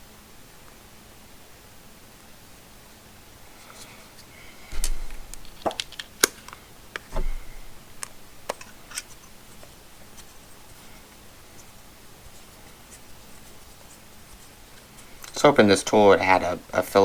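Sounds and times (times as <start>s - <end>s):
dull bumps: 4.7s - 5.7s, 7.1s - 8.0s.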